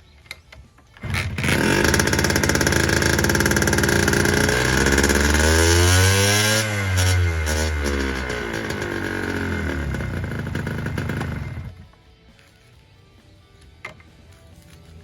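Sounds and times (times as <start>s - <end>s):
two-stroke engine revving unevenly: 1.0s - 11.8s.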